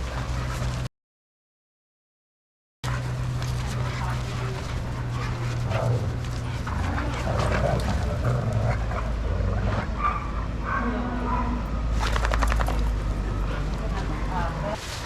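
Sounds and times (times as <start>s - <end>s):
steady low hum: 2.8s - 14.8s
dogs vocalizing while playing: 2.9s - 14.5s.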